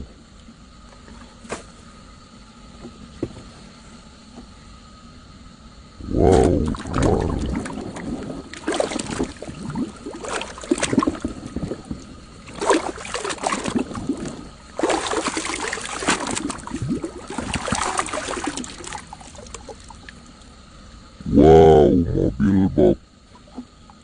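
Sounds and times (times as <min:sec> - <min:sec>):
water splashing and sloshing: 0:06.3 - 0:21.2, 0:23.2 - 0:24.0.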